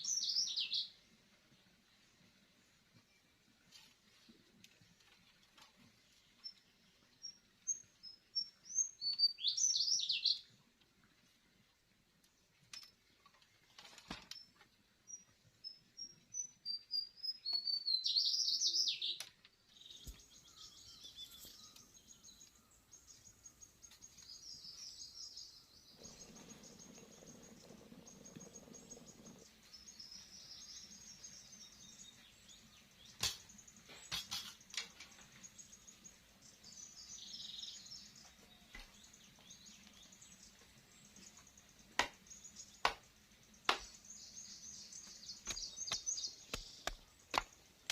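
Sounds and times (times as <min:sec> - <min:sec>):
birds singing and chirping: 0:00.0 - 0:01.0, 0:07.2 - 0:10.5, 0:14.4 - 0:47.9.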